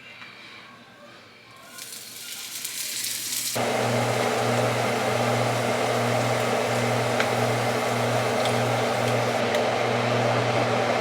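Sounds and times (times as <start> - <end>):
electric fan appliance humming: 1.6 - 11.0.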